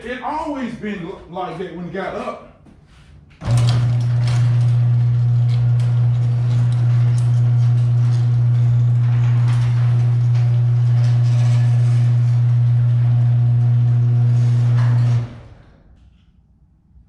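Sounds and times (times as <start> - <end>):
garage door motor humming: 3.2 - 16.4.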